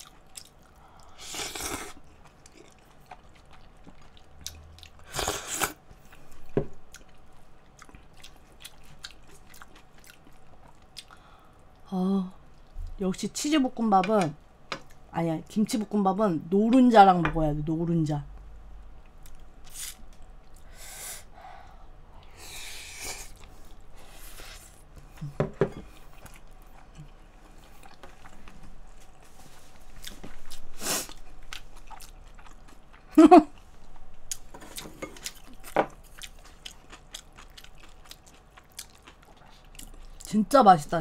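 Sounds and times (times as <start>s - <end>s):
close chewing and mouth sounds: 0.0s - 13.0s, 22.2s - 40.6s.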